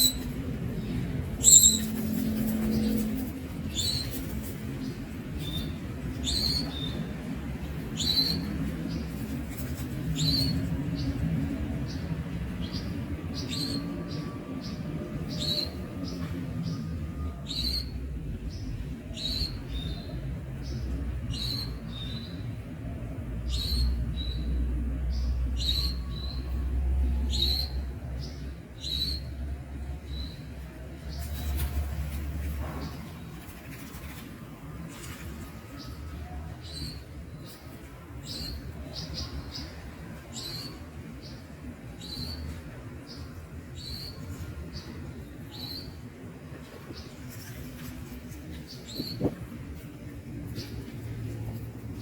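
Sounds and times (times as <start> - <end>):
young bird high chirps: 0.0 - 0.3, 1.4 - 1.9.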